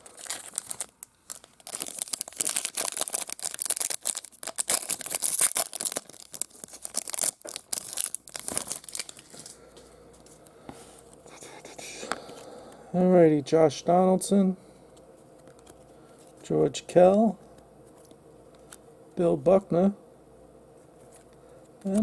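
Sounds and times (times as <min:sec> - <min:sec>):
wrapper tearing and crinkling: 0:00.0 - 0:09.6.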